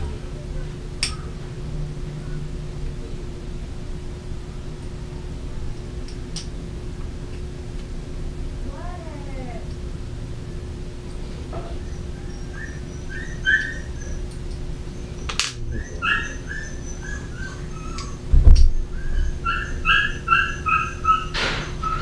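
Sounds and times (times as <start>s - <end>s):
bird chirping: 11.7s - 18.2s.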